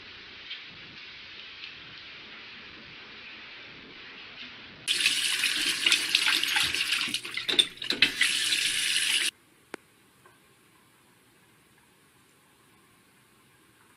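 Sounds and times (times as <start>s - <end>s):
faucet water splashing into sink: 4.9s - 9.3s.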